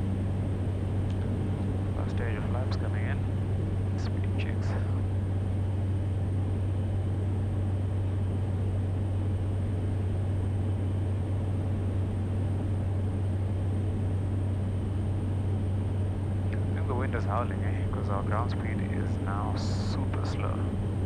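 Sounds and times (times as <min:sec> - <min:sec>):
turboprop engine droning: 0:00.0 - 0:21.0.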